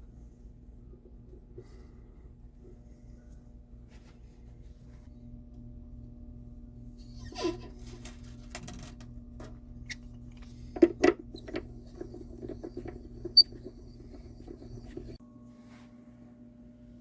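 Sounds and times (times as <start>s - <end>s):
steady hum: 9.0s - 15.2s.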